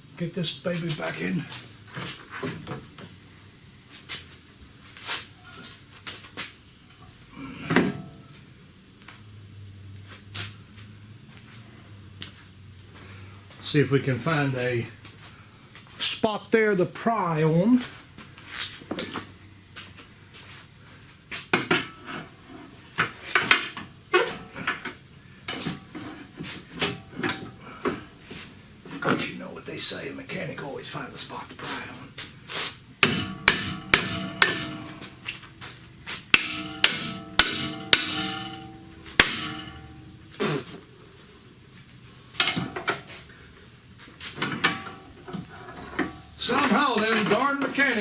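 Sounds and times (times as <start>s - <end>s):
faint steady hiss: 0.0s - 48.0s
pry bar clanking on metal: 33.0s - 35.2s, 36.3s - 40.3s.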